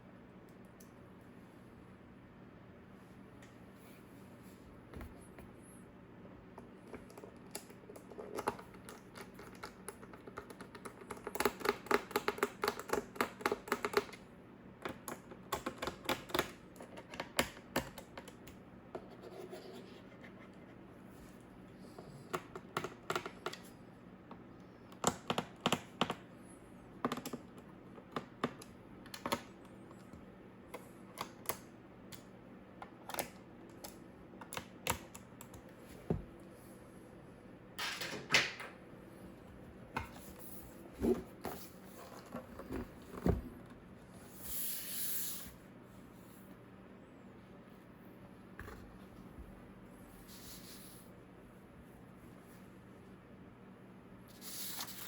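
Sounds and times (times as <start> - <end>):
typing on laptop keyboard: 6.9 - 14.2, 14.9 - 18.6.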